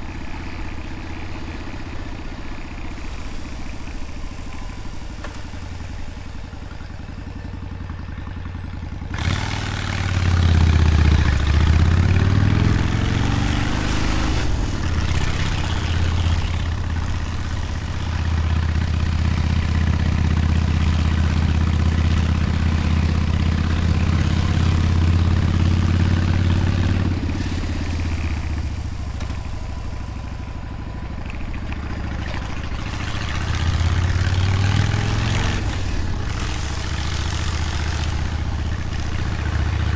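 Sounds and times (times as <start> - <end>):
motorcycle engine revving: 7.0 - 39.9.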